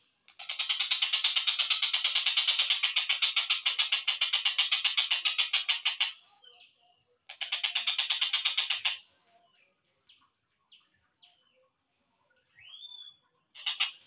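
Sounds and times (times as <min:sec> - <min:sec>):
kingfisher rattling call: 0:00.3 - 0:06.2, 0:07.3 - 0:09.0, 0:13.6 - 0:14.0
faint bird chirps: 0:06.2 - 0:14.0.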